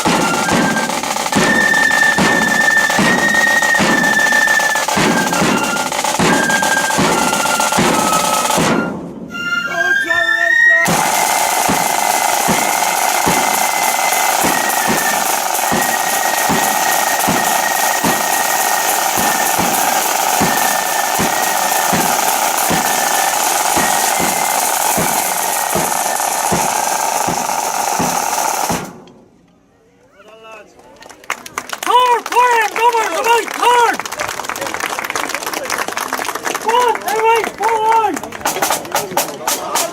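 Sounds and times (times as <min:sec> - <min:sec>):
rattling snare drums: 0:00.0 - 0:09.4, 0:10.8 - 0:29.4, 0:38.3 - 0:39.9
flutes playing high melody: 0:00.0 - 0:28.7
flute band playing a march: 0:00.0 - 0:29.0, 0:36.7 - 0:39.9
bass drum beating: 0:10.9 - 0:28.9.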